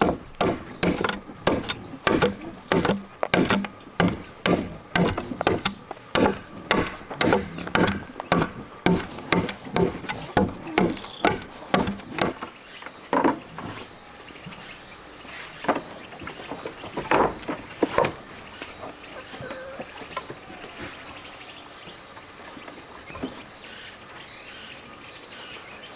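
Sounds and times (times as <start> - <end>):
wood being struck: 0.0 - 12.5
insects chirring: 0.0 - 25.9.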